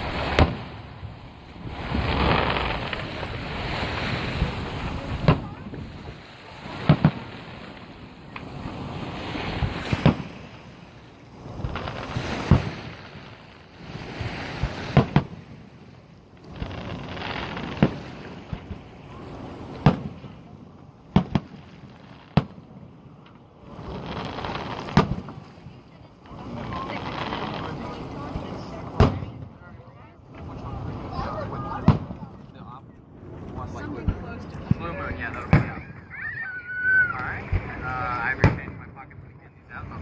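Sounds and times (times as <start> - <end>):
distant fireworks bursting: 0.0 - 15.6, 16.3 - 19.0, 19.6 - 20.3, 21.0 - 28.0, 28.9 - 29.6, 31.7 - 32.2, 34.0 - 36.0, 37.4 - 38.8
rushing wind: 0.0 - 21.1
water noise: 0.0 - 40.0.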